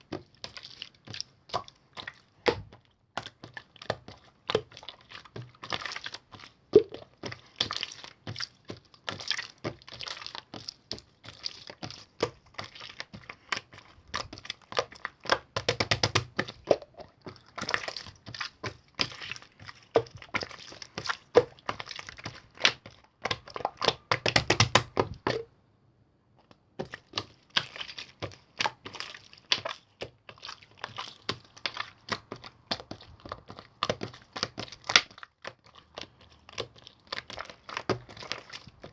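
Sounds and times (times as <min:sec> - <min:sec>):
slime clicking and popping: 0:14.8 - 0:17.0, 0:21.4 - 0:25.4.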